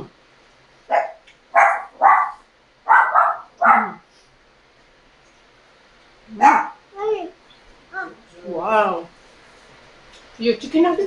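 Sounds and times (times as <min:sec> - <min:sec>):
dog barking: 0:00.9 - 0:04.0, 0:06.4 - 0:06.8.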